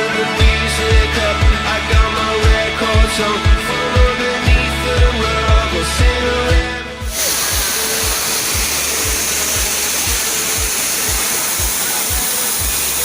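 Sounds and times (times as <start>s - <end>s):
thumping background music: 0.0s - 13.0s
waterfall roaring: 7.1s - 13.0s.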